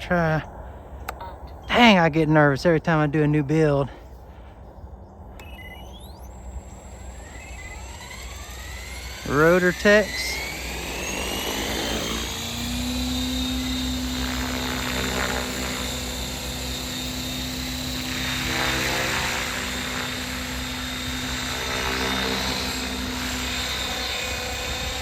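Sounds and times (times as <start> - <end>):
helicopter blades whirring: 0.0 - 25.0
electric motor whine: 5.3 - 25.0.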